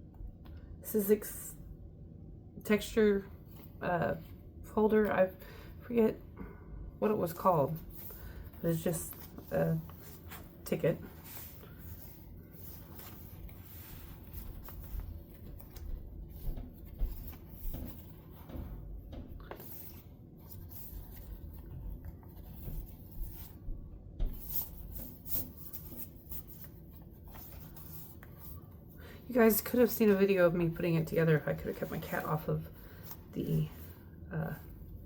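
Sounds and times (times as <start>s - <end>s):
paper pages rustling: 7.8s - 18.8s, 19.4s - 23.7s, 24.3s - 28.8s, 31.0s - 34.0s.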